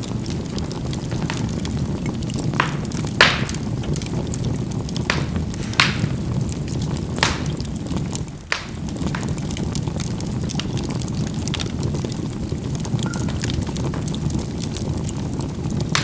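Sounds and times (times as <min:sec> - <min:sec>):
charcoal popping: 0:00.0 - 0:16.0
fire rumbling: 0:00.0 - 0:16.0
light crackles: 0:00.0 - 0:16.0.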